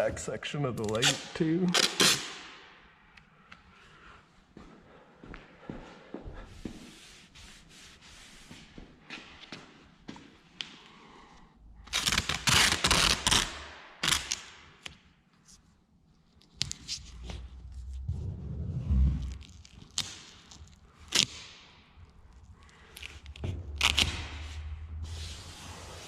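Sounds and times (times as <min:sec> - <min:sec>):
tape tearing in sharp snaps: 0:00.8 - 0:02.6, 0:11.8 - 0:15.1, 0:19.2 - 0:24.5
masking tape ripping off roll: 0:00.9 - 0:02.4, 0:11.9 - 0:15.0, 0:18.9 - 0:25.5.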